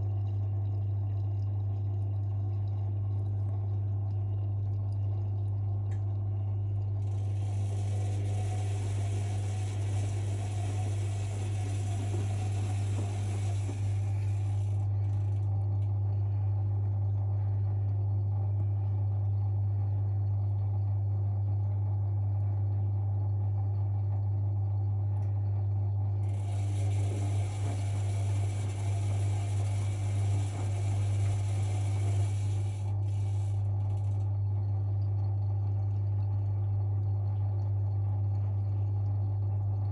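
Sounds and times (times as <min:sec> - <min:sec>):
washing machine humming: 0:00.0 - 0:39.9
hiss: 0:07.1 - 0:14.9, 0:26.3 - 0:33.5.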